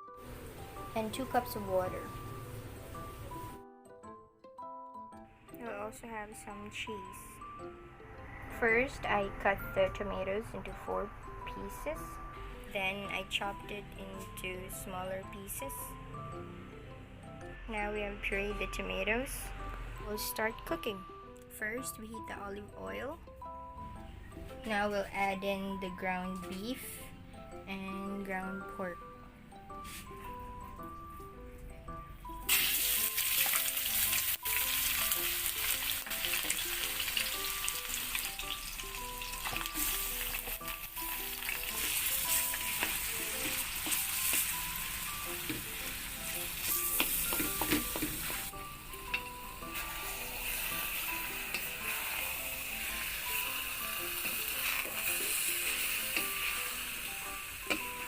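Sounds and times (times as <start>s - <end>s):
faint background music: 0.0s - 58.0s
meat sizzling in a wok: 32.5s - 48.6s, 49.2s - 58.0s.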